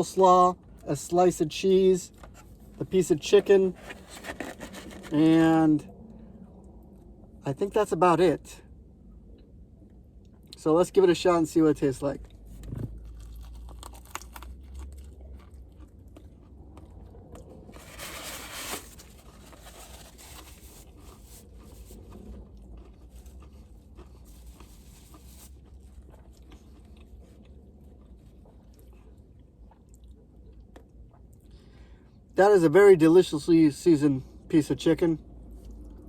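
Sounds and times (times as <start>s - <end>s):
low steady hum: 0.0s - 36.0s
person chewing crunchy food: 3.6s - 5.3s, 12.9s - 31.4s.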